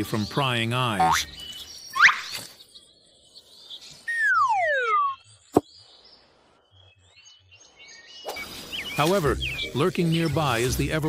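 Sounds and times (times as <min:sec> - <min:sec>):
bird rising chirp: 0:00.6 - 0:10.5
faint high chirps: 0:01.0 - 0:06.0
falling whistled bird call: 0:01.9 - 0:02.6, 0:04.0 - 0:05.2, 0:08.2 - 0:09.6.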